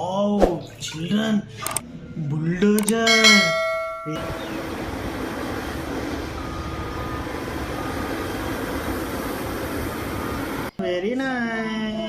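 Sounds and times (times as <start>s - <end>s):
bulldozer engine rumble: 2.8s - 10.7s
bright ding: 3.0s - 4.6s.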